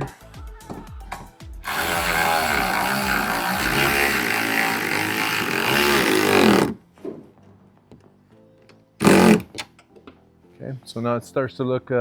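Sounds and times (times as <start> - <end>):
power driver running bolt: 1.7 - 6.8, 9.0 - 9.6.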